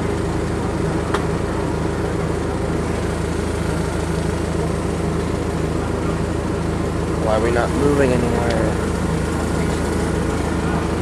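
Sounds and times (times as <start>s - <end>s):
tram engine idling: 0.0s - 11.0s.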